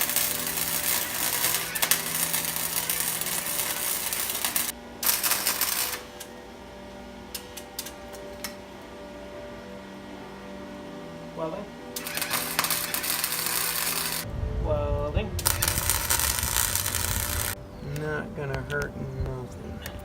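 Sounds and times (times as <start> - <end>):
welding arc crackling: 0.0 - 6.4, 7.3 - 8.6, 12.0 - 14.3, 15.4 - 17.6.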